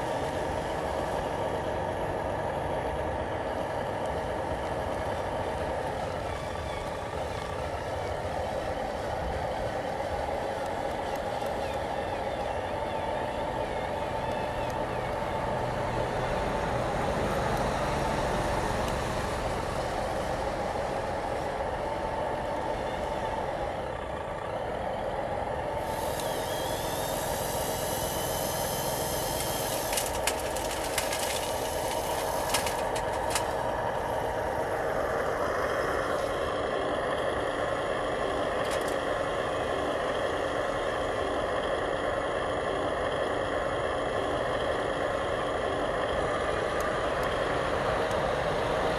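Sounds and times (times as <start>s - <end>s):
model truck motors whining: 0.0s - 48.9s
high hissing whine: 25.8s - 33.6s
sharp clicks: 29.2s - 33.6s.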